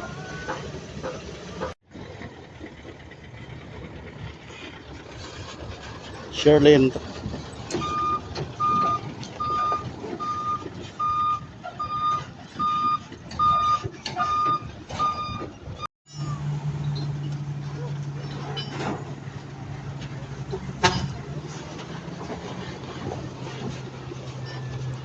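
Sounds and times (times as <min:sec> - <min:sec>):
truck reversing alarm beeping: 0:00.0 - 0:01.7, 0:07.6 - 0:18.7
truck rumble: 0:00.0 - 0:25.0.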